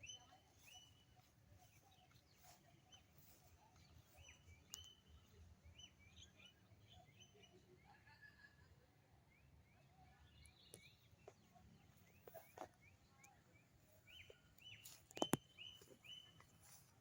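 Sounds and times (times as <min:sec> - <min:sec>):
faint background noise: 0:00.0 - 0:17.0
bird chirping: 0:09.4 - 0:16.9.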